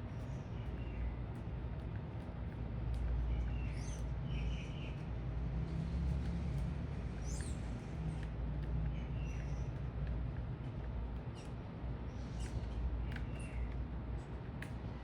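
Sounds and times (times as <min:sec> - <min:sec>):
low city rumble: 0:00.0 - 0:15.0.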